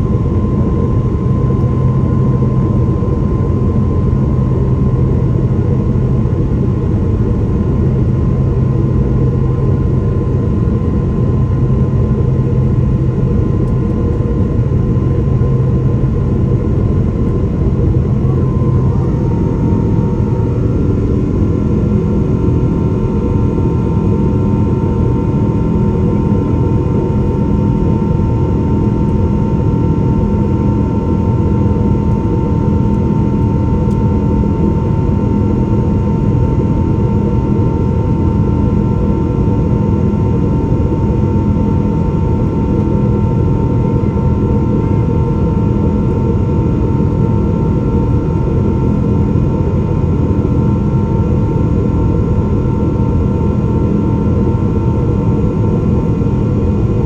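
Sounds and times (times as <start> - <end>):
jet engine roar in cabin: 0.0 - 57.0
jet engine whining tones: 15.2 - 28.8.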